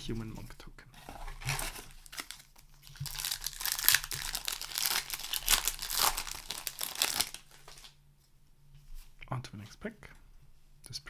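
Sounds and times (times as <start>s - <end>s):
foil wrapper crinkling and tearing: 1.3s - 8.0s.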